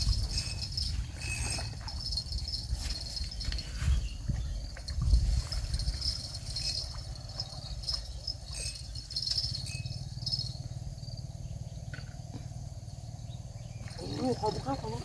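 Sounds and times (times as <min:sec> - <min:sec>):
fishing tackle rattling: 0:00.0 - 0:10.5.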